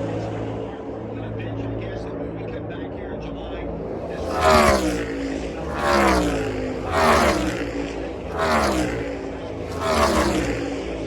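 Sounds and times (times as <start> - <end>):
race car engines passing by: 3.8 - 11.0.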